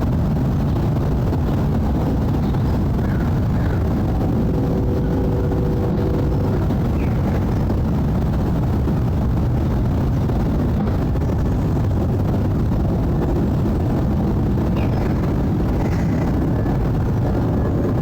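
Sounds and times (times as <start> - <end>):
jet airliner engine roar: 0.0 - 18.0.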